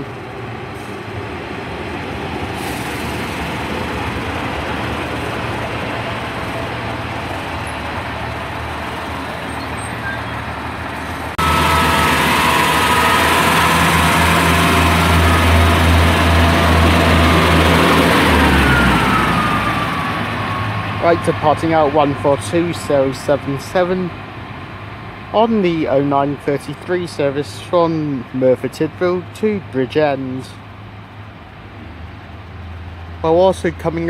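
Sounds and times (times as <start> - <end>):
diesel train engine running: 0.0 - 34.0
low hum: 11.4 - 20.6.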